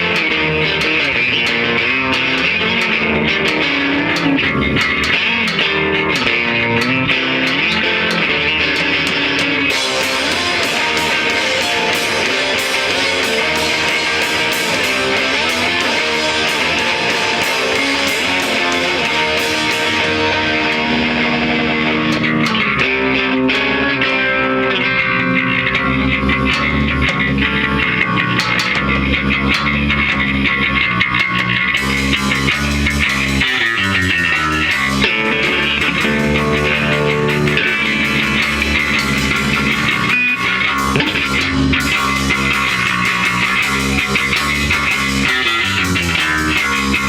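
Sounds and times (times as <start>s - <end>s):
bass guitar: 0.0s - 47.0s
electric guitar: 0.0s - 47.0s
rock band playing live: 0.0s - 47.0s.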